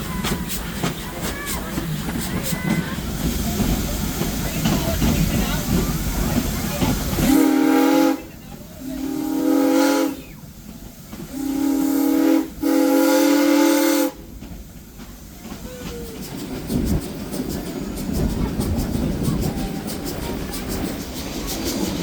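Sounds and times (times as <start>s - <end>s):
moving train rumble: 0.0s - 22.0s
rail clicks: 0.0s - 22.0s
steam whistle blasts: 7.2s - 8.3s, 8.9s - 10.5s, 11.3s - 14.2s.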